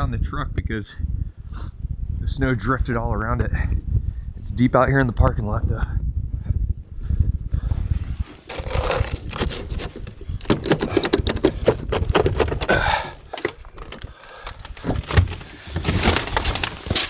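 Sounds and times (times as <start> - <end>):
scrapes and knocks: 8.1 - 17.0.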